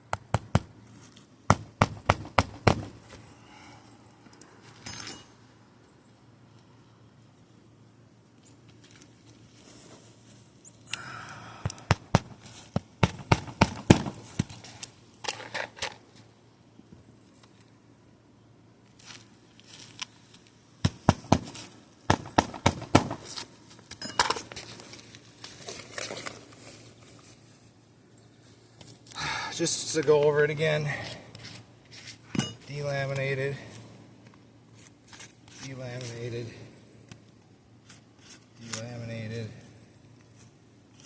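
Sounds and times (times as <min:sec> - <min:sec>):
shingles cracking and snapping: 0:11.9 - 0:16.0, 0:21.1 - 0:23.5.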